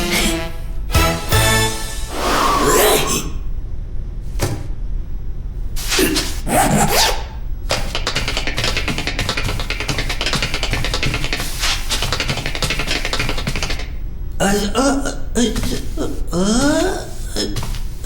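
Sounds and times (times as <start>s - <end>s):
cartoon rubbing and scraping noises: 5.8s - 13.9s, 14.5s - 18.0s
fast ticking: 7.7s - 14.0s.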